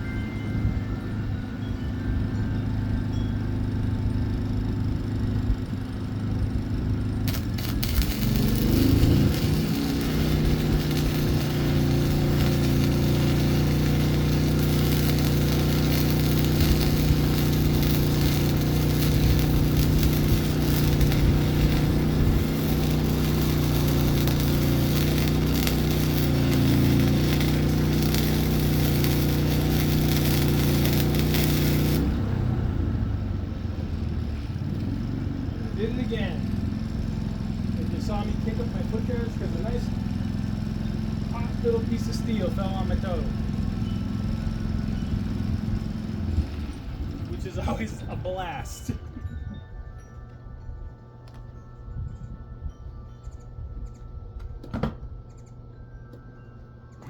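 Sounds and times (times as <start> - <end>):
generator engine humming: 0.0 - 51.9
welding arc crackling and hissing: 7.3 - 32.4.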